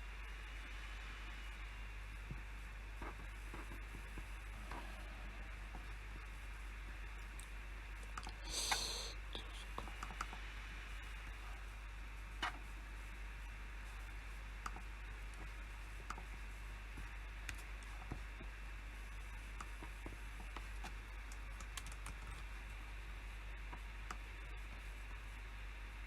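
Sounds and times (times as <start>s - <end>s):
background hiss: 0.0s - 21.8s
low hum: 0.0s - 26.0s
keyboard keystrokes: 20.8s - 22.4s.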